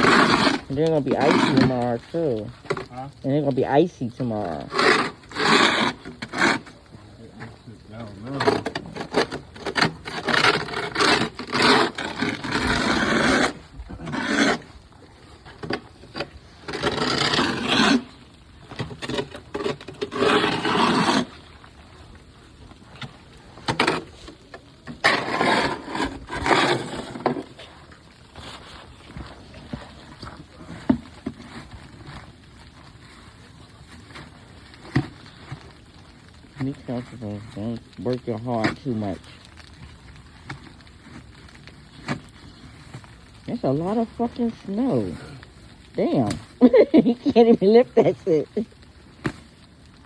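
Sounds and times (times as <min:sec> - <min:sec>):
snow shovel scraping snow: 0:00.0 - 0:02.4, 0:04.6 - 0:06.6, 0:08.7 - 0:14.7, 0:16.7 - 0:18.1, 0:19.0 - 0:21.4, 0:25.0 - 0:27.6.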